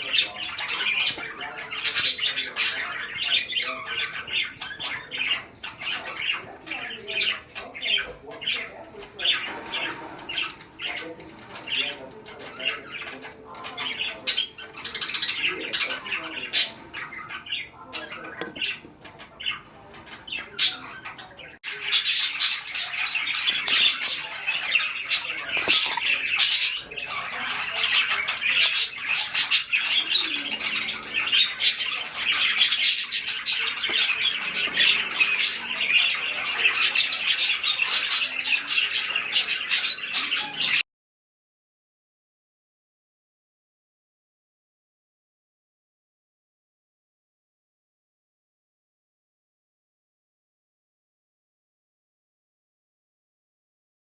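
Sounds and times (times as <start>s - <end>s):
budgerigars chattering and squawking: 0.0s - 40.8s.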